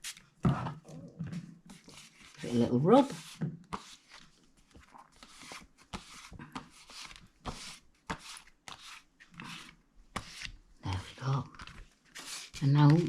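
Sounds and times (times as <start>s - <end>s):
hand rubbing wet card: 11.6s - 13.0s.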